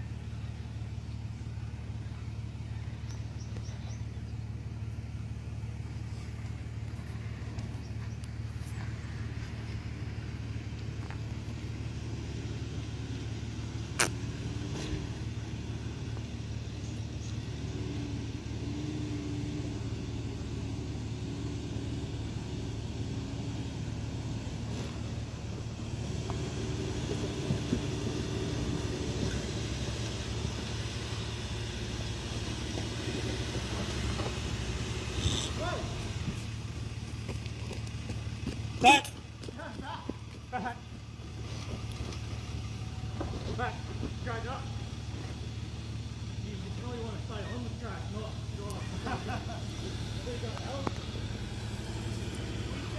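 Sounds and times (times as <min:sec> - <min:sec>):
engine running at low revs: 0:00.0 - 0:52.9.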